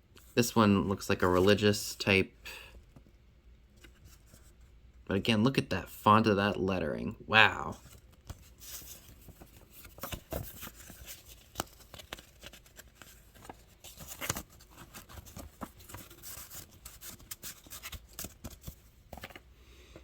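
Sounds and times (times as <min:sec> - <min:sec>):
paper rustling and scraping: 0:07.8 - 0:19.4.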